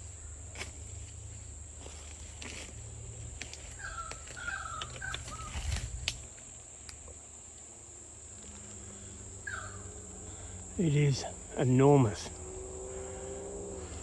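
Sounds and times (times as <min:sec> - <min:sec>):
high insect drone: 0:00.0 - 0:14.0
clicks and rustles: 0:03.4 - 0:07.1
bird calling: 0:03.6 - 0:06.0, 0:08.6 - 0:14.0.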